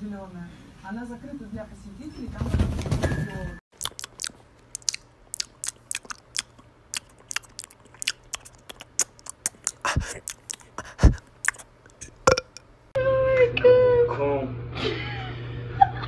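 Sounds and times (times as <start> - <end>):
cat chewing food: 3.8 - 12.2.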